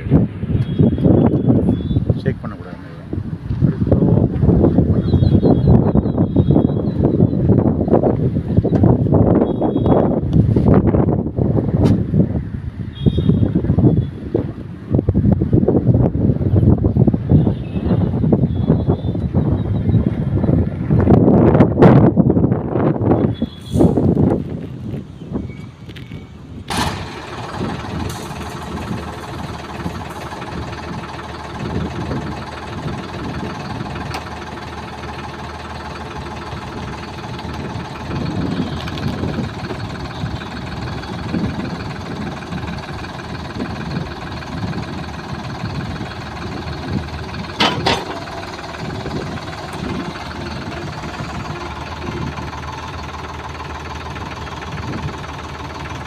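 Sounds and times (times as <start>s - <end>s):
tractor engine running: 14.0s - 56.0s
sharp metallic clanks: 47.5s - 48.8s.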